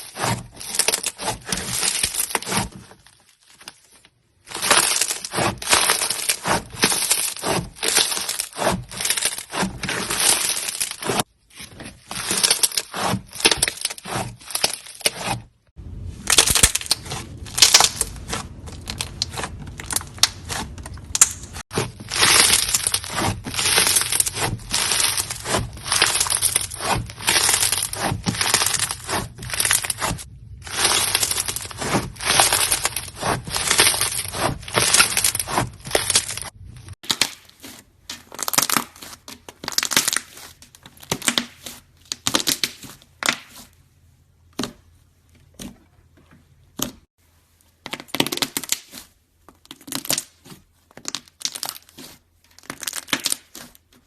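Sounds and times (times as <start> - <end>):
dried clay crushing and crackling: 0.0 - 54.0.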